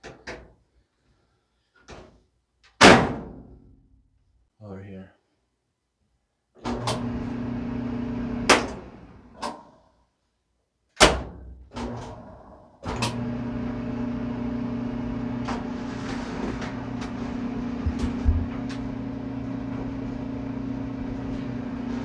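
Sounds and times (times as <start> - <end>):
clothes dryer humming: 6.7 - 9.3, 11.9 - 22.0.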